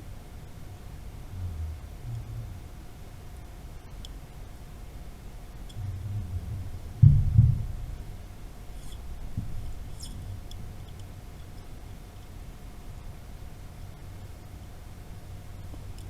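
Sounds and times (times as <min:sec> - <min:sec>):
faint steady hum: 0:00.0 - 0:16.0
low rumble: 0:01.0 - 0:03.0, 0:05.6 - 0:08.4
dull low thumps: 0:05.8 - 0:08.2.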